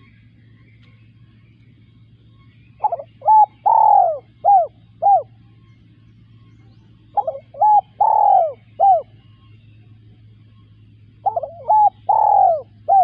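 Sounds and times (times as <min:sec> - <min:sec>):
dove cooing: 0:02.7 - 0:05.4, 0:06.9 - 0:09.3, 0:10.9 - 0:13.0.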